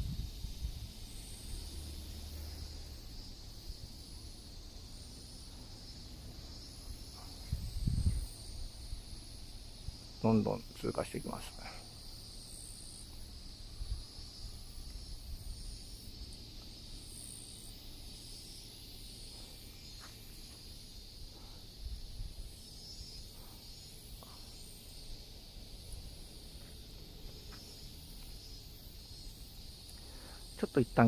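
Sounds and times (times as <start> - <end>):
wind rumble on microphone: 0.0 - 1.0, 7.2 - 9.1
insects chirring: 0.0 - 31.0.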